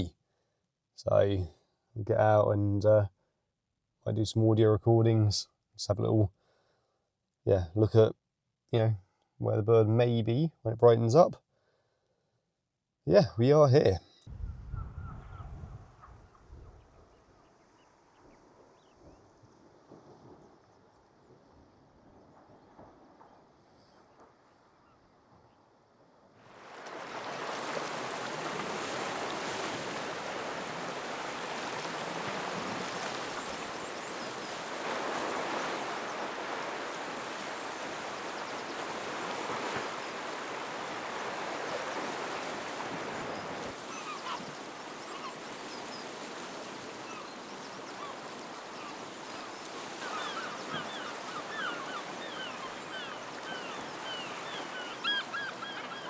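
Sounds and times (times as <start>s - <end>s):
sea surf washing ashore: 26.4s - 56.0s
birds calling: 29.2s - 56.0s.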